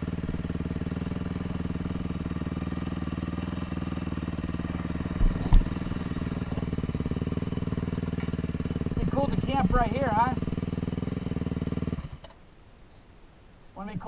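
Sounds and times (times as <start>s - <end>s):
vehicle engine running: 0.0s - 12.4s
short low thumps: 4.9s - 7.0s.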